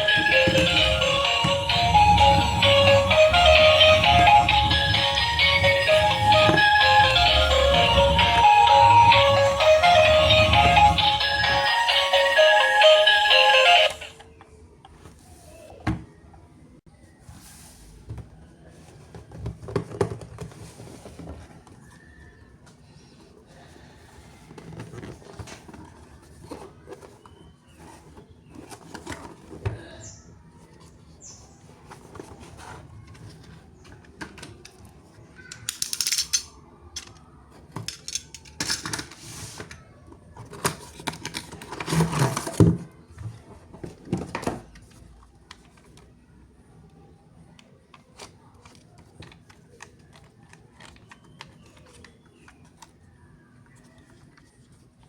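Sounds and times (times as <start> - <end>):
plastic toys clicking and tapping: 33.1 - 39.8, 40.4 - 42.8, 47.6 - 53.0.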